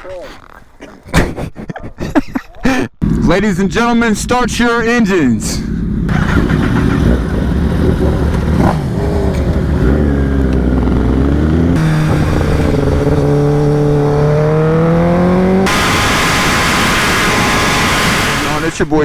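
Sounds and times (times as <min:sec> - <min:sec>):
motorbike engine revving: 0:03.0 - 0:03.5, 0:04.2 - 0:19.0
motorbike accelerating: 0:03.0 - 0:19.0
loud hiss: 0:11.8 - 0:14.2, 0:15.6 - 0:19.0.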